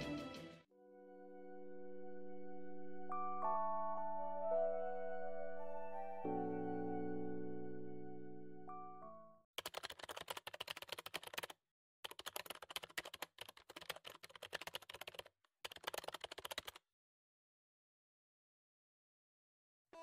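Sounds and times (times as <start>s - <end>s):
keyboard typing clicks: 9.6s - 16.8s.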